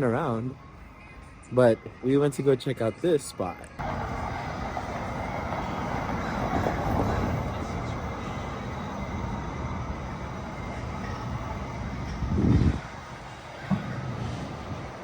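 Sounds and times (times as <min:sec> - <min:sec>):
passing traffic rumble: 0:03.8 - 0:15.0.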